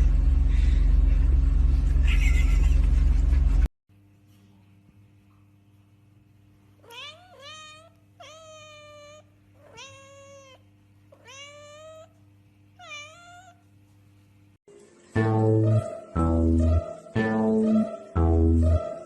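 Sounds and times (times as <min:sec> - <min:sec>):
cat meowing: 0:06.8 - 0:12.2, 0:12.8 - 0:13.6.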